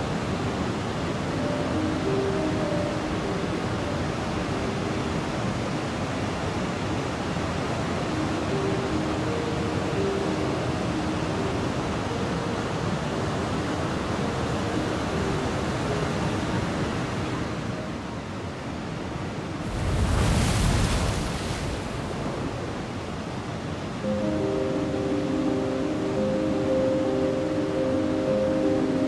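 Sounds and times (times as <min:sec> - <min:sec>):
ocean surf rushing: 0:00.0 - 0:29.0.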